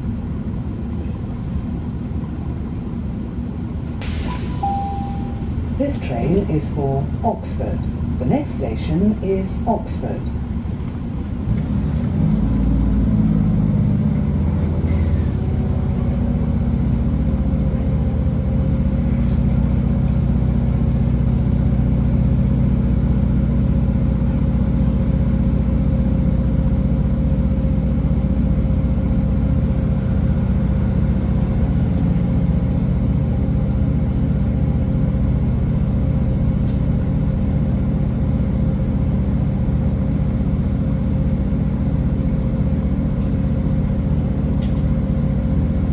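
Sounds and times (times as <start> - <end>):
train diesel engine droning: 0.0 - 45.9.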